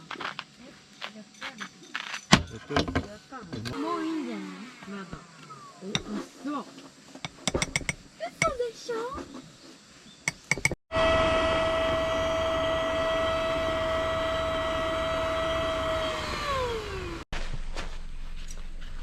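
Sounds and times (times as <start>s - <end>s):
small electric motor whining: 10.9s - 17.2s.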